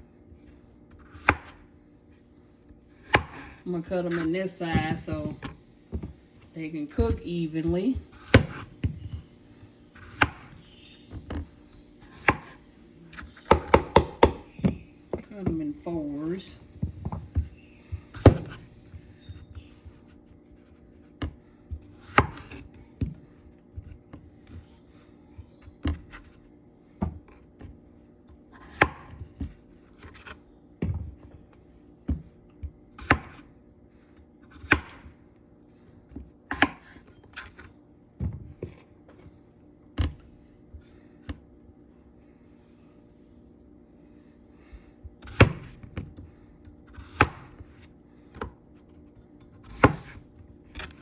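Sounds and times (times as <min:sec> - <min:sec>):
faint steady hum: 0:00.0 - 0:51.0
knife cutting potatoes: 0:00.9 - 0:01.7, 0:07.0 - 0:08.8, 0:21.7 - 0:22.7, 0:45.2 - 0:45.9, 0:46.8 - 0:51.0.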